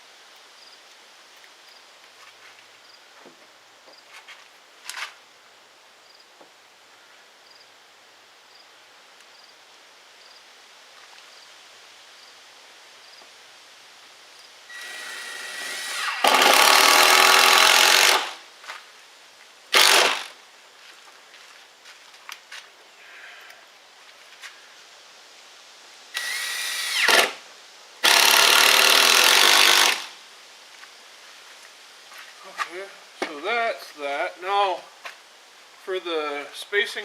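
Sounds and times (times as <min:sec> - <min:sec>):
cordless drill driving screw: 0:14.7 - 0:18.4, 0:19.8 - 0:20.3, 0:26.2 - 0:27.4, 0:28.0 - 0:30.1.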